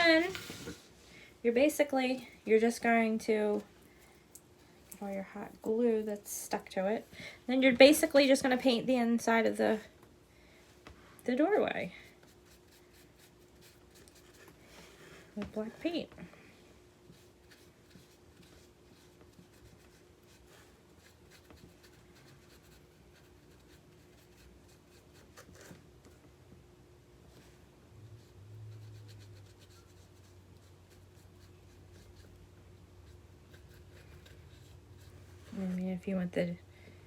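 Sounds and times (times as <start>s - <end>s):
paintbrush scratching: 17.1s - 25.7s, 28.2s - 32.4s, 33.0s - 35.8s.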